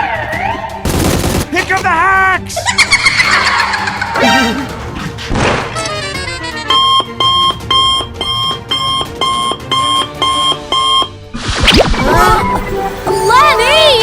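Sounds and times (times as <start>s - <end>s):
electronic alarm beeping: 6.7s - 11.2s.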